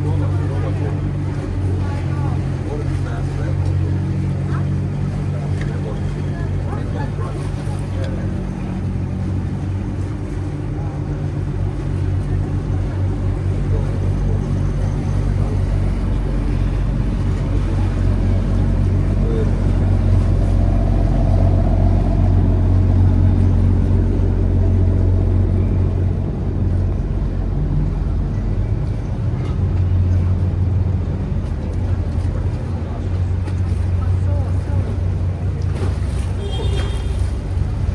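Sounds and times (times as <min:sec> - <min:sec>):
motorboat engine humming: 0:00.0 - 0:37.9.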